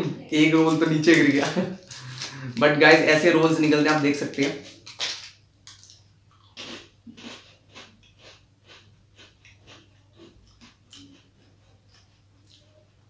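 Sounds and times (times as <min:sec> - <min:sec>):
breathing through the nose: 0:01.9 - 0:02.6
crunchy chewing: 0:04.4 - 0:13.0.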